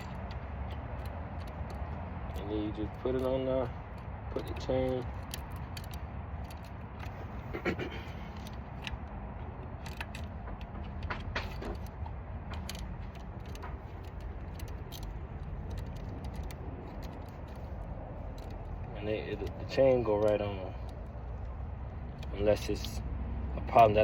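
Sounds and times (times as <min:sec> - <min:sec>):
saw chain clicking and clinking: 0:00.0 - 0:07.4, 0:09.7 - 0:23.0
steady low rumble: 0:00.0 - 0:24.0.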